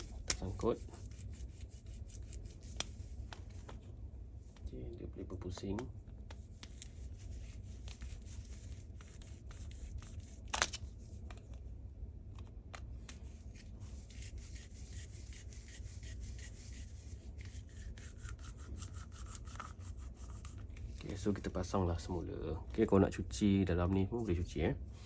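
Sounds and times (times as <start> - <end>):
hands rubbing plastic parts: 0.0 - 11.7, 12.3 - 23.0, 23.8 - 25.0.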